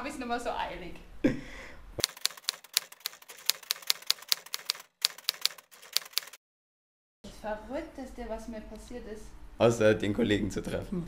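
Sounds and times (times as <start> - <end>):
typewriter keys clacking: 2.0 - 6.4.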